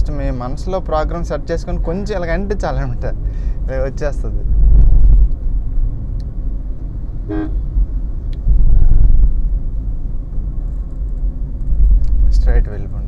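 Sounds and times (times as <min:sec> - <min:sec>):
car engine and road rumble: 0:00.0 - 0:13.0
car horn toot: 0:07.3 - 0:07.7.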